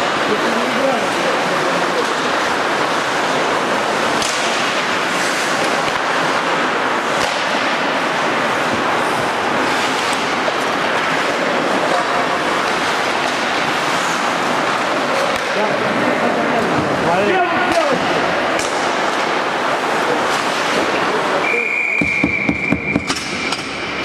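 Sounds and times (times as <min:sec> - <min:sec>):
hockey sticks and puck clacking: 0:00.0 - 0:24.0
skates hissing on ice: 0:01.1 - 0:15.3.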